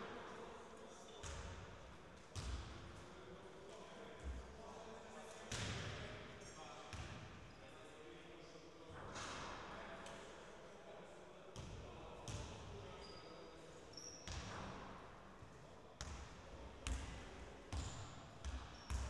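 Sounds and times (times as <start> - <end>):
basketball bouncing on court: 2.4 - 2.7, 12.3 - 12.5, 17.7 - 19.0
shoe squeaks: 13.0 - 14.3.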